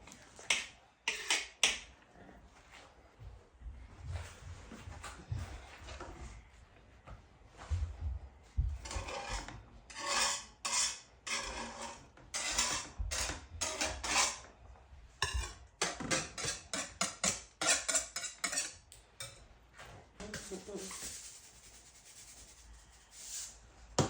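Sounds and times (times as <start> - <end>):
spoon scraping batter in a bowl: 0.1 - 2.9, 8.8 - 14.5, 15.2 - 23.7.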